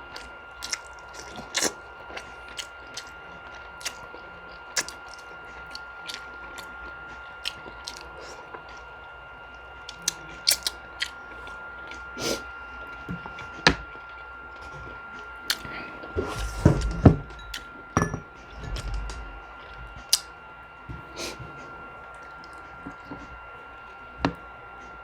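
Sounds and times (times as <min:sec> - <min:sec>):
wet chewing noises: 0:00.0 - 0:17.7, 0:18.5 - 0:20.4
faint high hum: 0:00.0 - 0:25.0.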